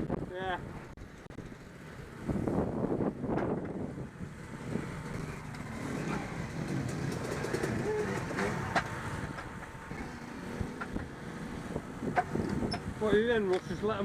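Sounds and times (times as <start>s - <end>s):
motocross bike engines running: 0.0s - 14.0s.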